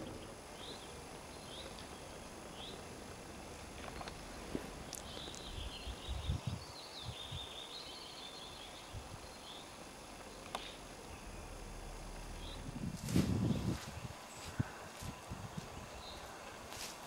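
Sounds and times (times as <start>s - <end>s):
outdoor background hiss: 0.0s - 17.0s
dull low thumps: 10.9s - 15.8s.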